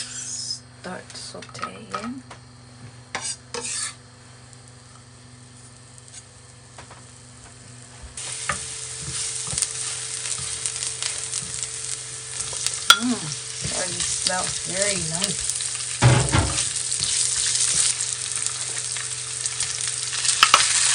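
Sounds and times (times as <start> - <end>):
loud crackling sizzle: 2.2 - 20.9
utensil scraping pan: 3.1 - 4.0
garlic sauteing in oil: 3.2 - 20.9.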